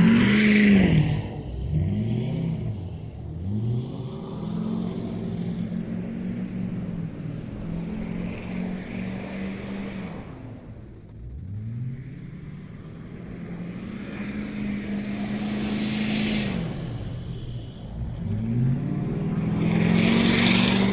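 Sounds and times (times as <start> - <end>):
vehicle engine revving: 11.1 - 20.9.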